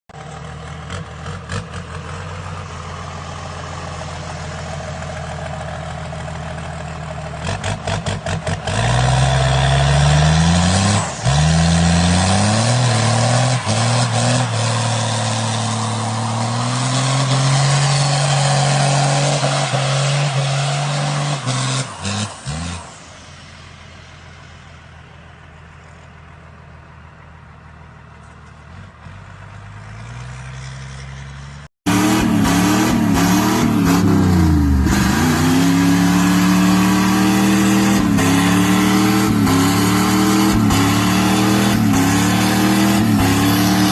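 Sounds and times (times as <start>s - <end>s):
truck engine revving and shifting: 0.2s - 23.4s, 28.7s - 43.9s.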